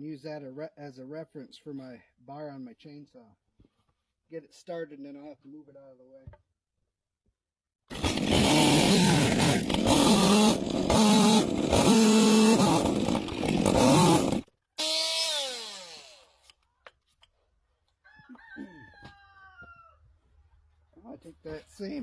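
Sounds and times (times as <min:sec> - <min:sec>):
chainsaw cutting log: 0:07.9 - 0:16.5.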